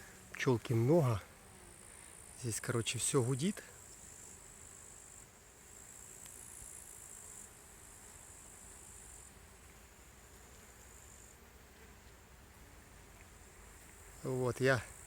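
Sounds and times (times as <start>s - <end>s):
high-pitched insect trill: 2.0s - 9.4s.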